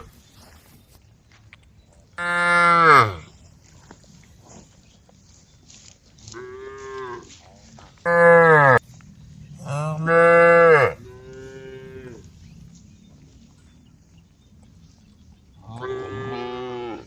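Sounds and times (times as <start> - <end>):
cows mooing: 2.2 - 3.3, 8.1 - 8.8, 9.5 - 12.3, 15.6 - 17.0.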